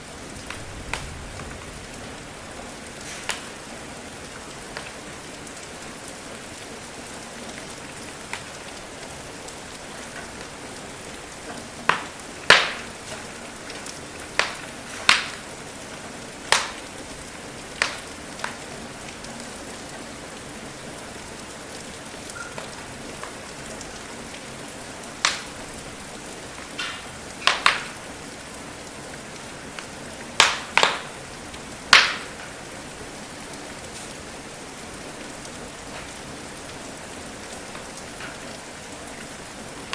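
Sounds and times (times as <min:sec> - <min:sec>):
rain hiss: 0:00.0 - 0:39.9
wood fire crackling and popping: 0:00.4 - 0:02.1, 0:02.9 - 0:05.6, 0:07.5 - 0:10.6, 0:11.2 - 0:19.9, 0:20.9 - 0:32.7, 0:33.5 - 0:34.2, 0:35.4 - 0:39.9.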